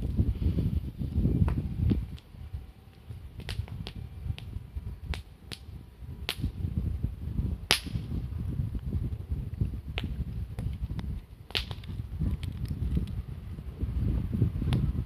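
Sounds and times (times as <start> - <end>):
campfire crackling and popping: 1.0 - 6.9, 7.5 - 13.5.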